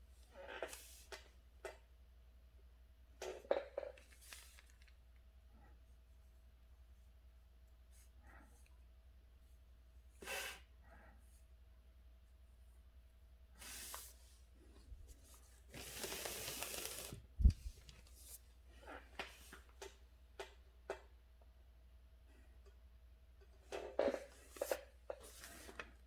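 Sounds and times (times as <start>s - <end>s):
paper rustling: 15.1s - 18.4s.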